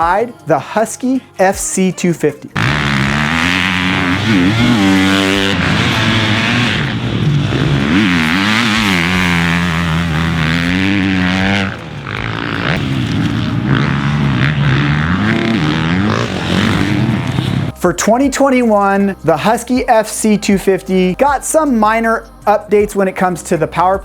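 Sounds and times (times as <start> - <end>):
dirt bike engine revving: 2.6 - 17.8.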